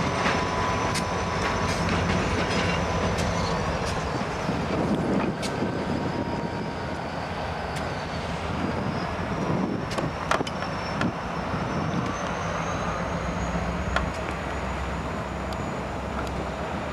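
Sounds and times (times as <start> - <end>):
wheels clicking over rail joints: 0.0 - 4.2, 9.4 - 11.2
freight train rumbling: 0.0 - 16.9
high wheel squeal: 0.0 - 16.9.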